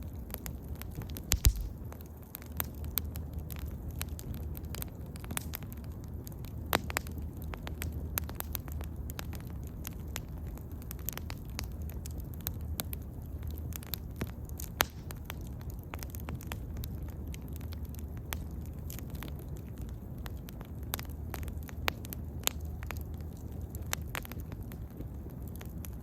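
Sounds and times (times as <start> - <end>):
fire pops: 0.0 - 26.0
wood bonfire crackling: 0.0 - 26.0.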